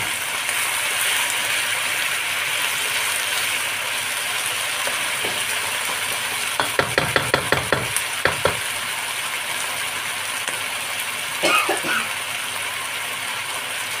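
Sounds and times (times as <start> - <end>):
chicken wings sizzling in a wok: 0.0 - 14.0
wooden spatula tapping a pan: 6.6 - 8.7.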